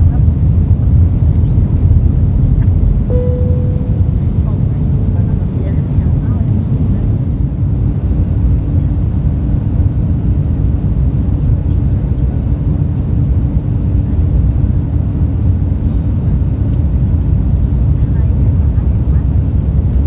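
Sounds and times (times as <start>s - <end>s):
low rumble of engines and airflow: 0.0s - 20.0s
faint steady hum: 1.2s - 7.9s.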